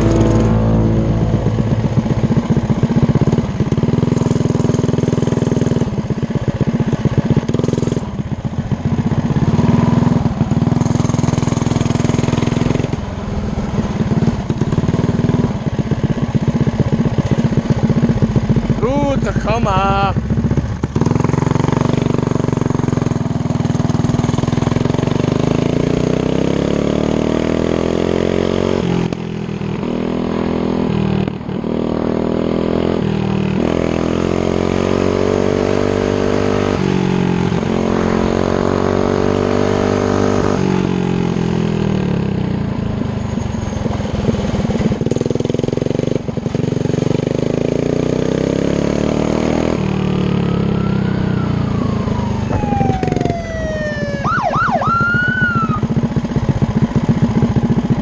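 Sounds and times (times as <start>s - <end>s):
mini bike engine revving: 0.0s - 58.0s
police siren wailing: 50.2s - 55.9s.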